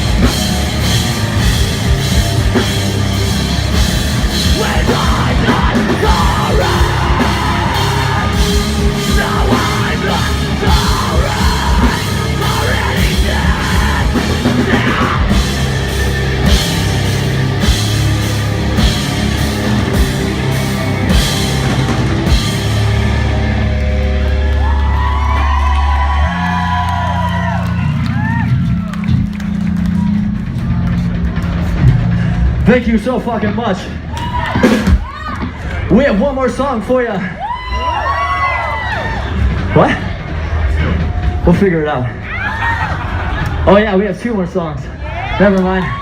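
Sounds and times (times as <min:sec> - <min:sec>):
pounding drums: 0:00.0 - 0:24.1
distorted guitars: 0:00.0 - 0:37.0
person yelling and singing: 0:04.3 - 0:15.7.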